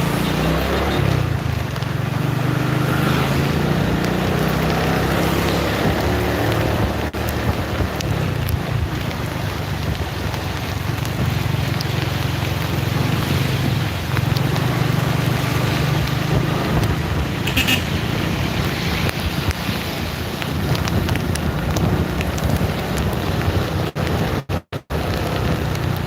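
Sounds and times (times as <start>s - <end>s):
rain hiss: 0.0s - 26.0s
vehicle engine and road drone: 0.0s - 26.0s
wind buffeting microphone: 3.6s - 24.4s.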